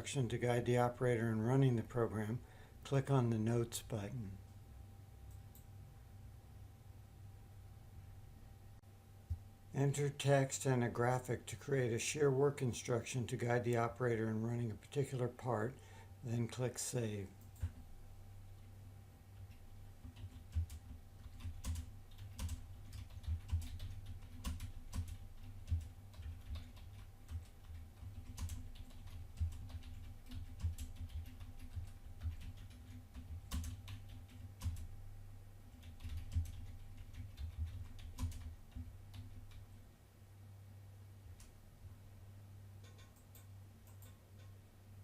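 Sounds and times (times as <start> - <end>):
steady low hum: 0.0 - 45.0
typing on a keyboard: 19.4 - 34.9, 35.7 - 39.6.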